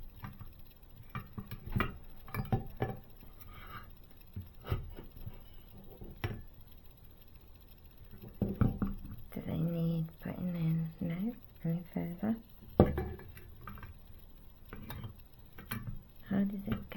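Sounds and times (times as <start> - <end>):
light clicks and taps: 0.0 - 16.9.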